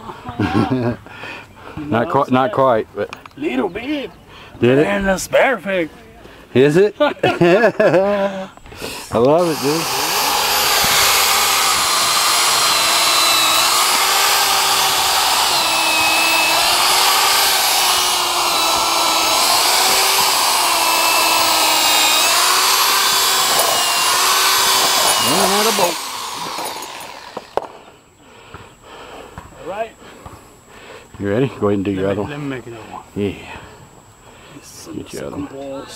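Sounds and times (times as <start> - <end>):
electric drill running: 8.8 - 27.7.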